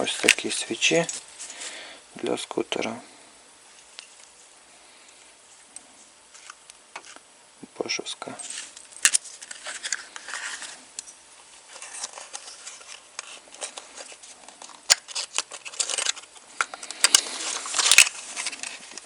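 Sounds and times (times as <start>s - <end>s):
packaging rustling: 8.4s - 10.8s, 11.6s - 19.0s.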